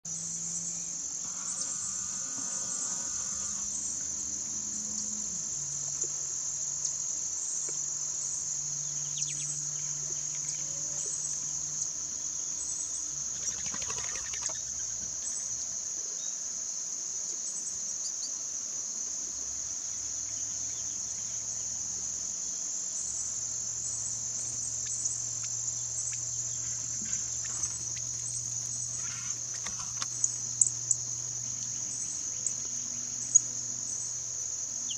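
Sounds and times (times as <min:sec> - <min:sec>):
insects trilling: 0:00.1 - 0:34.9
faint bird chirps: 0:12.5 - 0:16.4.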